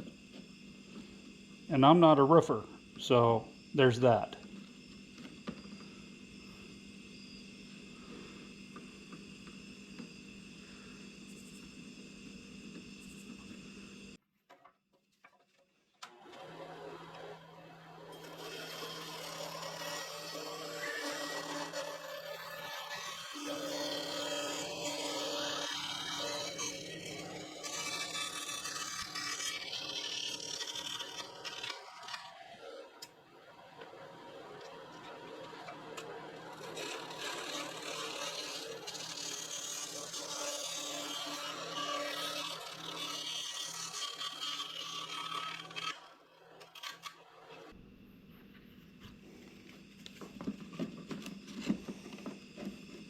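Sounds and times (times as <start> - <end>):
faint background hum: 0.0 - 14.2, 16.8 - 53.0
hand tool scraping wood: 18.2 - 32.8, 34.6 - 47.7.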